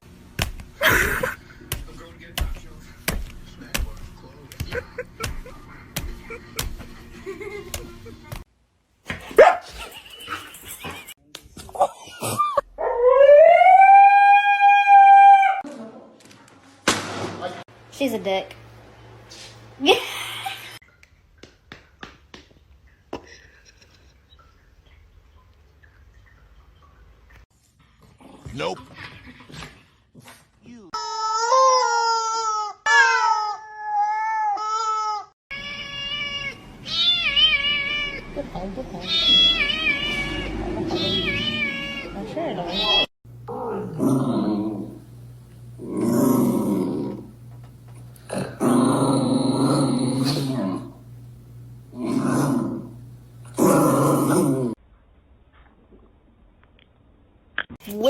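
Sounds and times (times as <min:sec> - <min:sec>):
dog howling: 0:12.8 - 0:15.6
cat yowling: 0:39.0 - 0:43.9.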